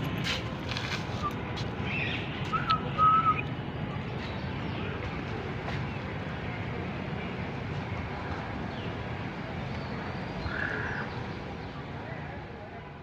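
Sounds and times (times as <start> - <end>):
outdoor crowd hum: 0.0 - 13.0
whistled notes: 2.5 - 3.4.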